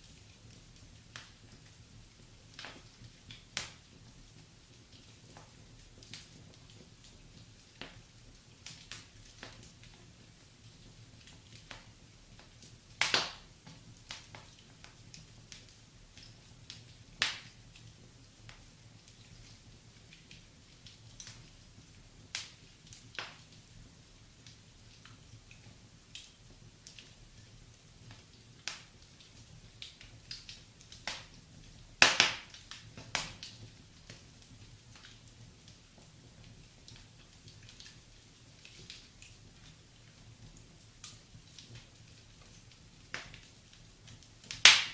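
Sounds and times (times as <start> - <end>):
faint low hiss: 0.0 - 44.9
wood fire crackling: 0.0 - 44.9
loud fire pops: 2.6 - 3.9, 11.2 - 17.8, 32.0 - 34.3, 44.4 - 44.9.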